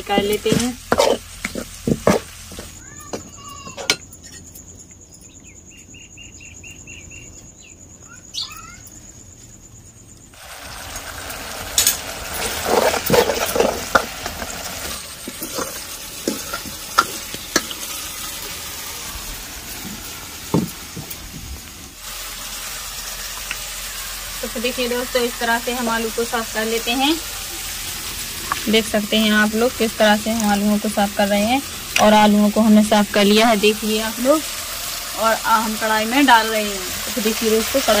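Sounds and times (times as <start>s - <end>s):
tomatoes sizzling in a pan: 0.0s - 4.0s, 10.3s - 38.0s
ladle stirring and scraping: 0.1s - 4.4s, 11.8s - 18.6s.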